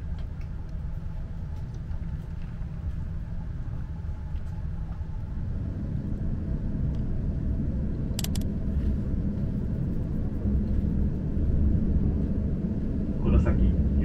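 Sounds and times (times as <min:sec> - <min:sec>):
quick double click: 0:08.2 - 0:08.5.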